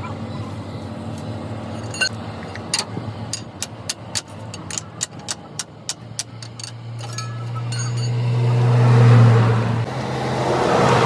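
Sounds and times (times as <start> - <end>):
sharp metallic taps: 1.2 - 8.2.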